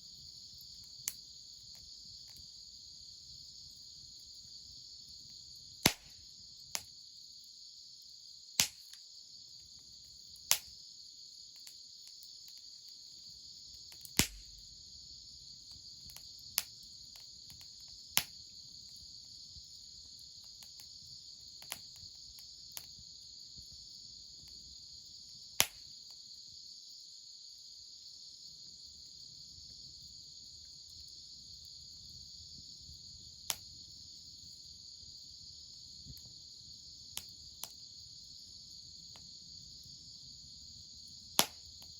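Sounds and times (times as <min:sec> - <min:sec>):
crickets chirring: 0:00.0 - 0:41.9
wood fire crackling and popping: 0:05.2 - 0:06.9, 0:08.6 - 0:09.0, 0:13.8 - 0:14.8, 0:15.7 - 0:23.1.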